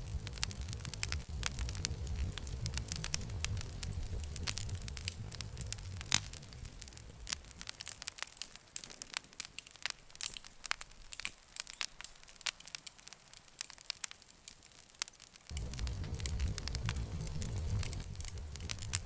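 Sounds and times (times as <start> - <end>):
low rumble: 0.0 - 7.7, 15.5 - 19.0
campfire crackling and popping: 0.0 - 19.0.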